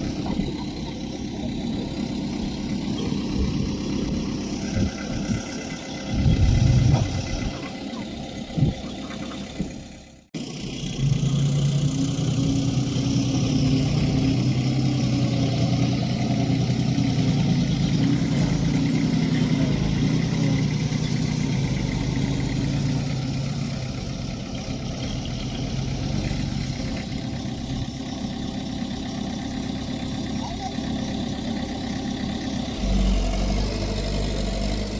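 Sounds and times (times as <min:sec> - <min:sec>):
diesel engine humming: 0:00.0 - 0:34.9.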